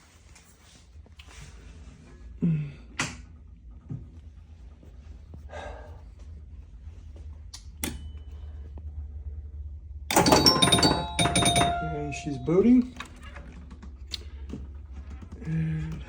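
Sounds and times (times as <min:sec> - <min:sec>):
machine clicks and knocks: 0:10.1 - 0:14.0.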